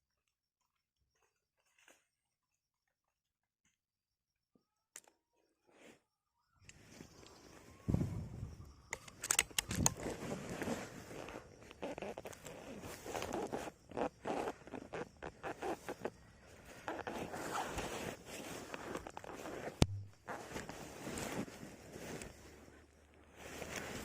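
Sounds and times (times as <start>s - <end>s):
scraping and rustling: 9.1s - 22.7s.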